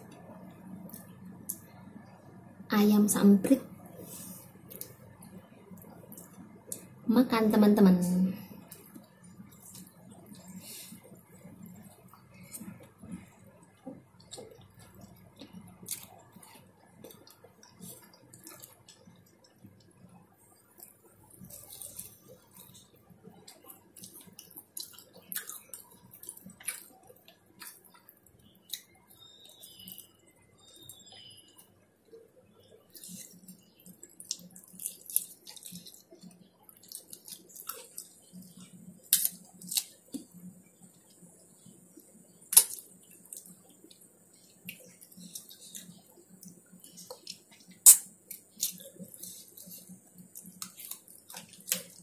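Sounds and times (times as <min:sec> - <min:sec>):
person chewing and lip smacking: 0:00.1 - 0:02.1, 0:04.6 - 0:07.0, 0:08.6 - 0:20.0, 0:20.7 - 0:31.6, 0:32.6 - 0:52.0.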